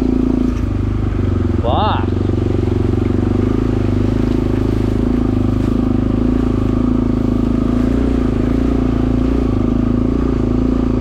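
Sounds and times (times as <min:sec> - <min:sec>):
dirt bike engine at low revs: 0:00.0 - 0:11.0.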